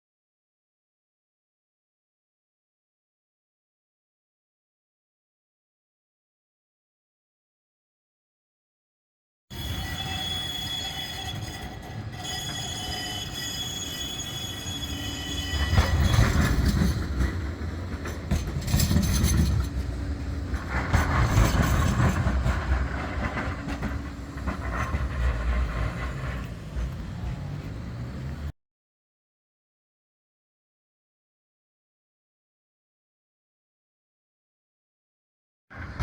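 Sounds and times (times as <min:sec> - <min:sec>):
tram wheels rumbling on rail: 0:09.5 - 0:28.5
tram whine: 0:09.5 - 0:28.5.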